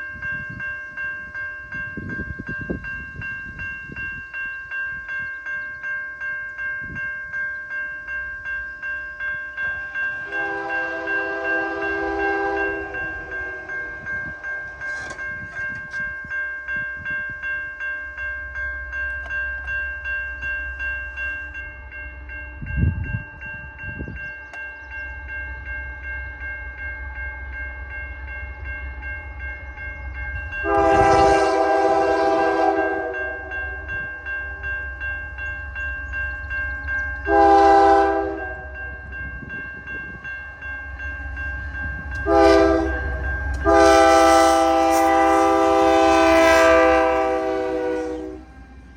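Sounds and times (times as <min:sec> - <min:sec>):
crossing bell ringing: 0:00.0 - 0:48.9
low rumble of train: 0:00.0 - 0:48.9
locomotive air horn blasts: 0:10.2 - 0:13.9, 0:30.6 - 0:33.6, 0:37.3 - 0:38.7, 0:42.2 - 0:48.5.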